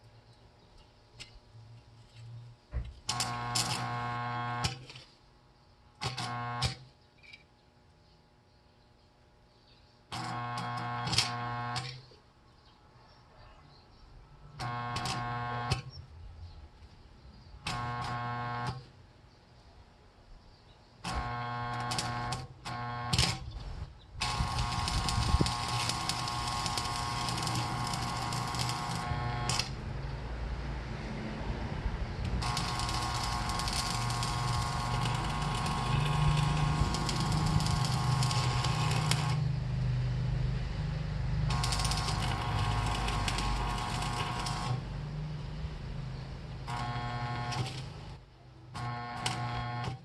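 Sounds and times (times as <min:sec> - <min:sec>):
welding arc crackling and buzzing: 0:02.8 - 0:05.1, 0:06.0 - 0:06.9, 0:10.1 - 0:12.0, 0:14.6 - 0:15.9, 0:17.6 - 0:18.9, 0:21.1 - 0:30.0, 0:32.2 - 0:39.8, 0:41.3 - 0:45.1, 0:46.4 - 0:50.0.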